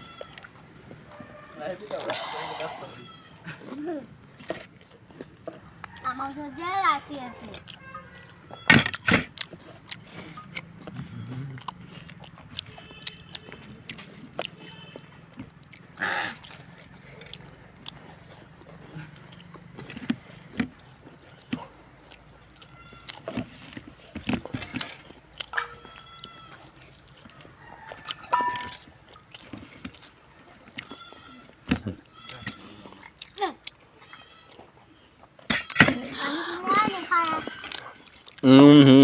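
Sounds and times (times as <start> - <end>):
person chewing crunchy food: 0.0 - 39.0
short animal calls: 2.0 - 3.4.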